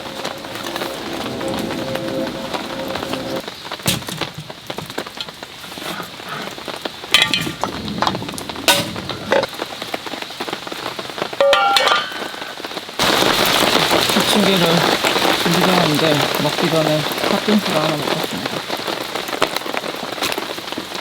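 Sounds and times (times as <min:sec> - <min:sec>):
background music: 0:00.0 - 0:03.5
steady rain falling: 0:00.0 - 0:21.0.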